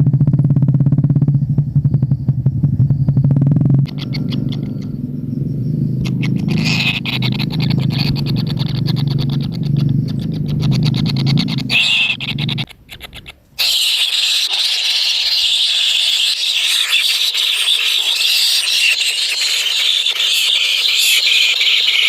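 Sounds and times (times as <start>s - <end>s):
low buzz: 0.0s - 12.7s
rapid clicks: 3.2s - 14.4s
bird chicks rasping begging calls: 3.8s - 22.0s.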